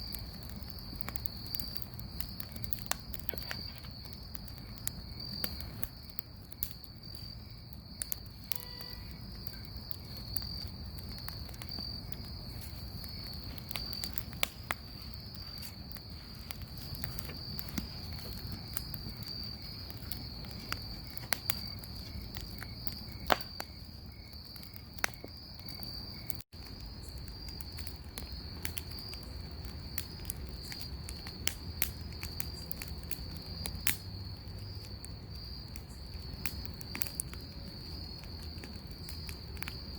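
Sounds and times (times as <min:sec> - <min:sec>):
bonfire crackling and popping: 0:00.0 - 0:39.9
crickets trilling: 0:00.0 - 0:39.9.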